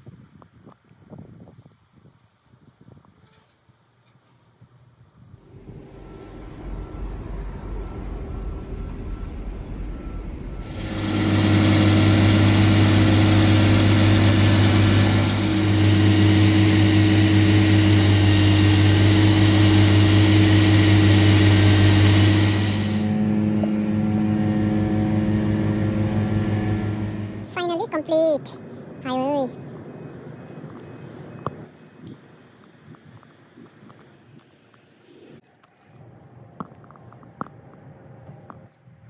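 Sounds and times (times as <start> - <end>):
vehicle engine humming: 5.2 - 28.1
wide rushing noise: 5.4 - 27.6.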